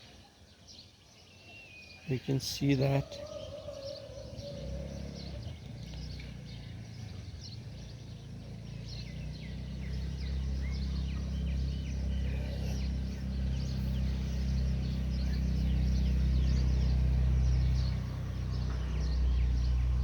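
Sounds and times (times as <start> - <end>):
small birds chirping: 0.0 - 20.0
low rumble: 4.7 - 20.0.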